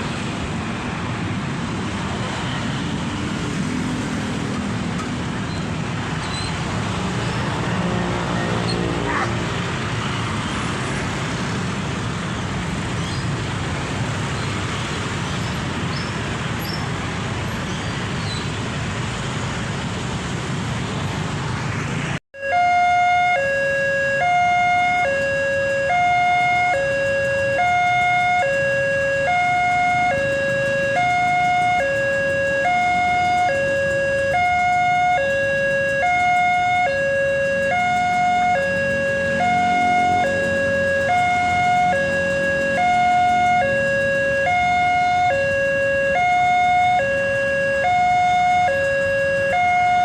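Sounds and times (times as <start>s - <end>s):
road traffic: 0.0s - 50.0s
level crossing siren two-tone wail: 22.4s - 50.0s.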